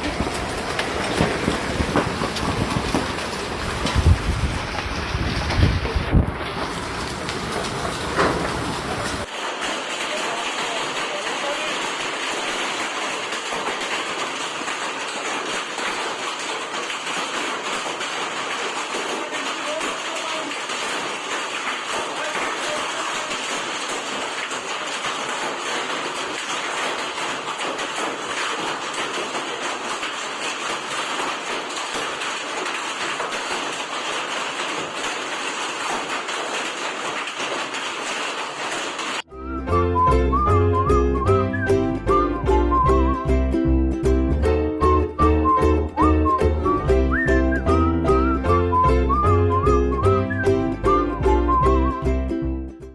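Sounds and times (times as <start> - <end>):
heavy rain and hail: 0.0 - 39.3.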